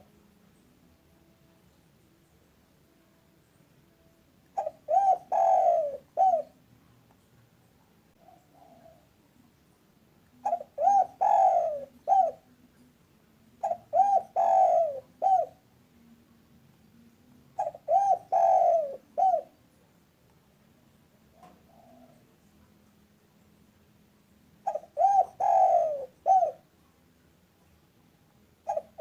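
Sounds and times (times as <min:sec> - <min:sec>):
dove cooing: 0:04.6 - 0:06.6, 0:08.2 - 0:09.2, 0:10.3 - 0:12.7, 0:13.6 - 0:15.6, 0:17.5 - 0:19.6, 0:21.2 - 0:22.4, 0:24.6 - 0:26.7, 0:28.6 - 0:29.0.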